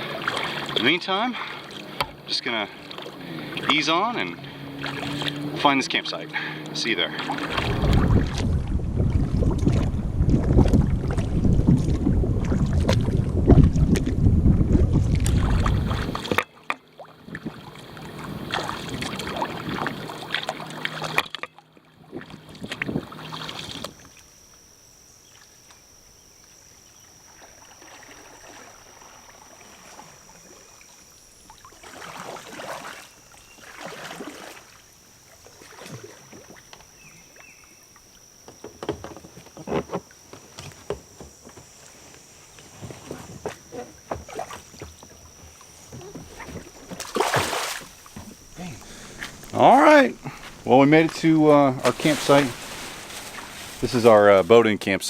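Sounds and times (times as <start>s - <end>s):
high insect buzz: 0.0s - 8.4s, 14.9s - 16.5s, 17.1s - 21.3s, 22.1s - 55.0s
kayak paddle splashes: 0.0s - 54.5s
wind rumbling on microphone: 7.5s - 16.4s, 22.2s - 24.0s.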